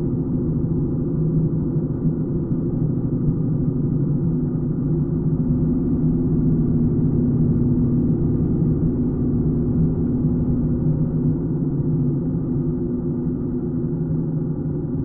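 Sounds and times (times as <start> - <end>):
motorcycle engine running: 4.6 - 14.2.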